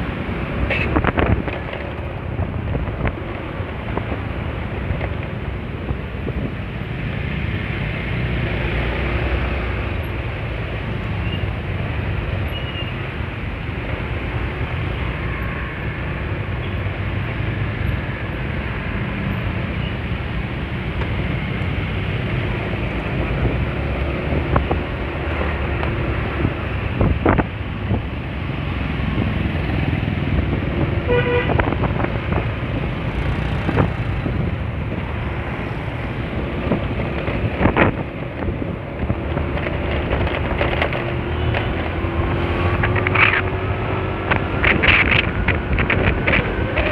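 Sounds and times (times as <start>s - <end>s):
wind rush on microphone: 0.0s - 46.9s
vehicle horn toot: 31.1s - 31.6s.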